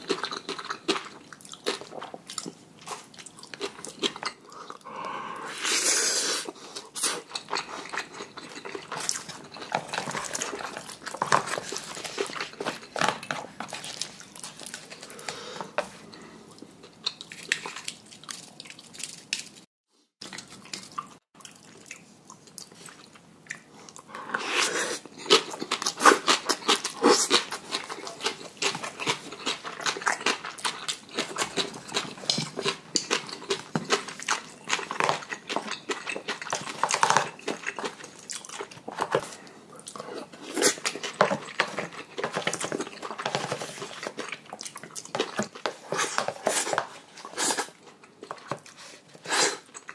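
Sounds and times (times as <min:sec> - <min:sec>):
chewing: 0:00.0 - 0:05.2, 0:06.4 - 0:49.9
slurping noodles: 0:04.5 - 0:07.9, 0:24.1 - 0:25.4.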